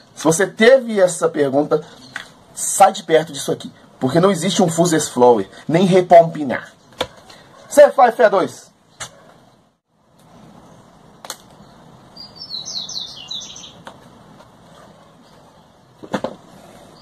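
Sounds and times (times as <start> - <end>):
small bird chirping: 10.3 - 13.9.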